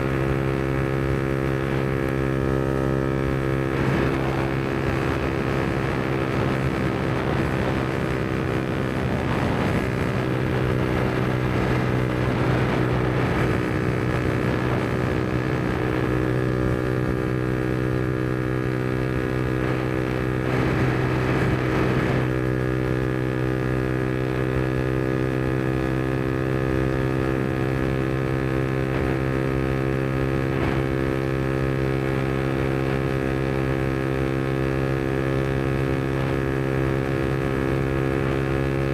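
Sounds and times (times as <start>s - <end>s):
motorcycle engine running steadily: 0.0s - 38.9s.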